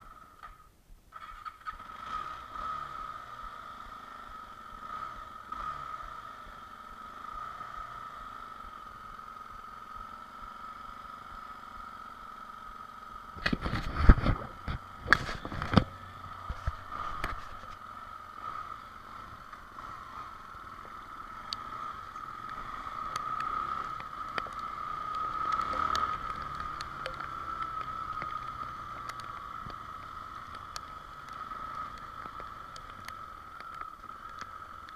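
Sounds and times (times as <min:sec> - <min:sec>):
motorcycle engine whine: 0:00.0 - 0:34.9
road and wind noise: 0:00.0 - 0:34.9.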